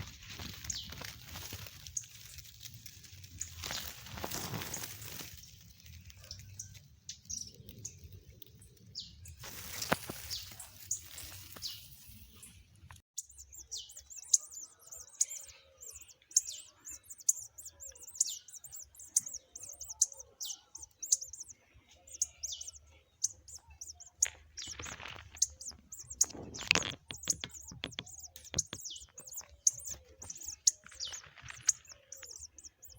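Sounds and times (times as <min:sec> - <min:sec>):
nestling birds cheeping: 0:00.0 - 0:32.9
brief rustling: 0:09.4 - 0:12.4.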